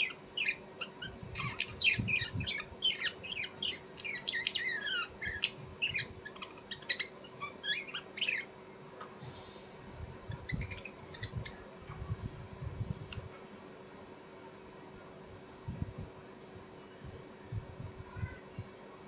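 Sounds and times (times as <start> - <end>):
small birds chirping: 0.0 - 12.2
faint steady hum: 0.0 - 19.0.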